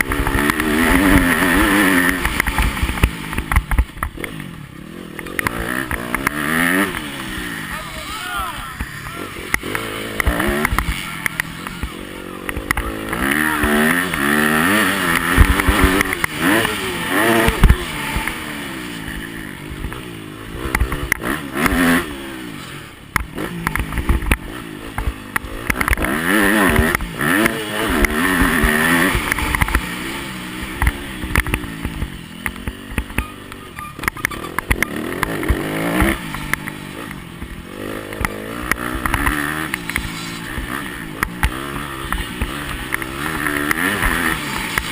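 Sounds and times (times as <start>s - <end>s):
sharp knocks and clatters: 0.0s - 4.5s
motocross bike engine revving: 0.0s - 44.9s.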